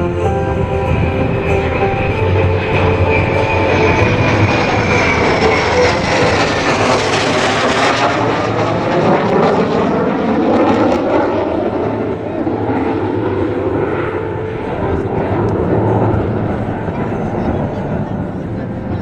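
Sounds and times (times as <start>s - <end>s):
jet aircraft roaring past: 0.0s - 19.0s.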